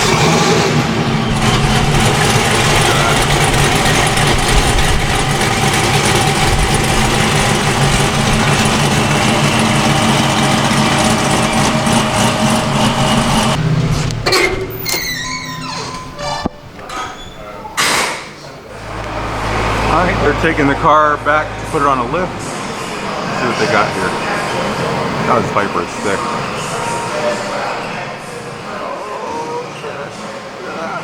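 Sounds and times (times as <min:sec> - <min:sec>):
car engine idling: 0:00.7 - 0:14.4, 0:18.6 - 0:28.8.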